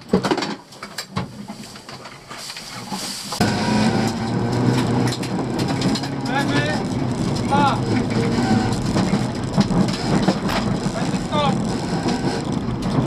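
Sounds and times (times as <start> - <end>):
car engine under throttle: 3.4 - 13.0
clicks and knocks: 4.0 - 13.0.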